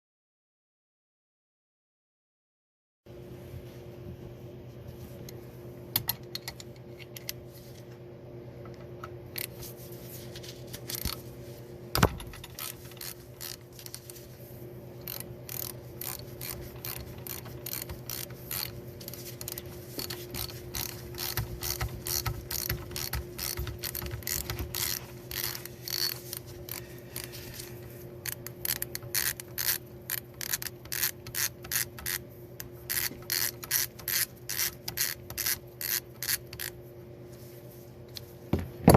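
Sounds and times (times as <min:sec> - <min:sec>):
steady low hum: 0:03.1 - 0:38.9
metallic clicking and ratcheting: 0:12.0 - 0:14.1, 0:15.0 - 0:26.8, 0:28.2 - 0:32.2, 0:32.9 - 0:36.7.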